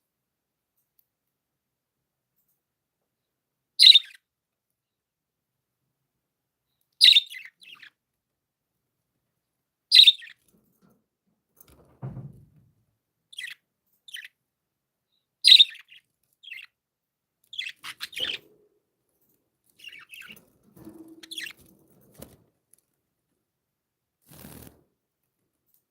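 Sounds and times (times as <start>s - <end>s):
budgerigars chirping: 3.8s - 4.2s, 7.0s - 7.9s, 9.9s - 10.4s, 13.4s - 14.3s, 15.4s - 16.7s, 17.5s - 18.5s
soft low thud: 11.9s - 12.6s.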